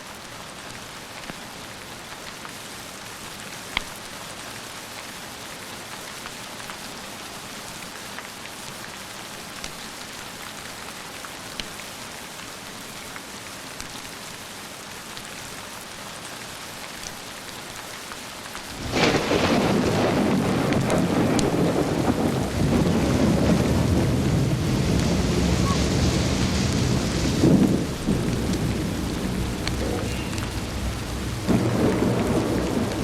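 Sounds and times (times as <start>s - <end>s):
steady rain: 0.0s - 33.0s
loud thunderclap: 18.8s - 33.0s.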